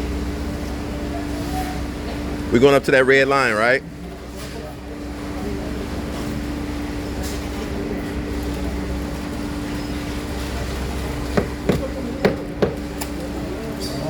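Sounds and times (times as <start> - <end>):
sharp knocks: 11.4 - 12.9.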